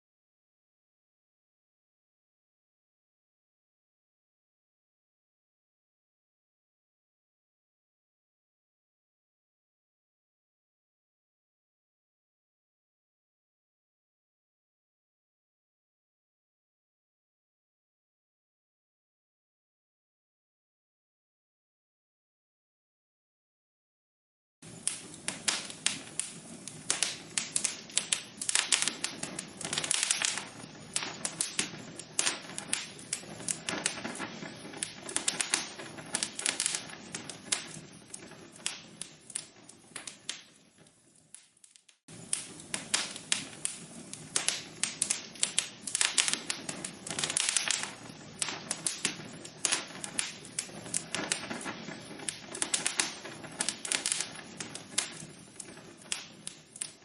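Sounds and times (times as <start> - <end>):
fire crackling and popping: 24.6 - 57.0
fire hiss: 24.6 - 57.0.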